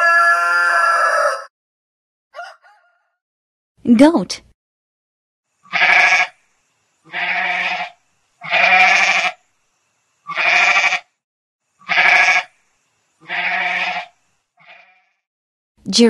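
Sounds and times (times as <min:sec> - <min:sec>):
goat bleating: 0:05.7 - 0:06.3, 0:07.1 - 0:09.4, 0:10.3 - 0:11.1, 0:11.8 - 0:12.5, 0:13.2 - 0:15.0.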